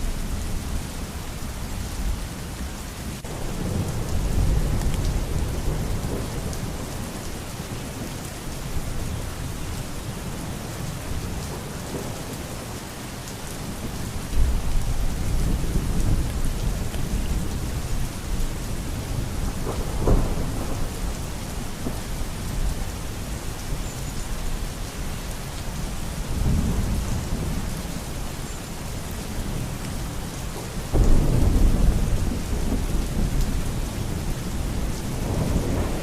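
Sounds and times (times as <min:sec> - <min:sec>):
steady rain: 0:00.0 - 0:36.0
rolling thunder: 0:14.4 - 0:22.2, 0:30.9 - 0:36.0.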